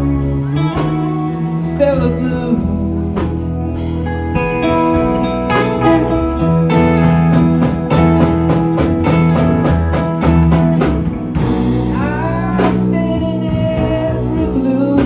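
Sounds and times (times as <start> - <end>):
bass guitar: 0.0 - 15.0
guitar lines: 0.0 - 15.0
drum beat: 4.4 - 11.8.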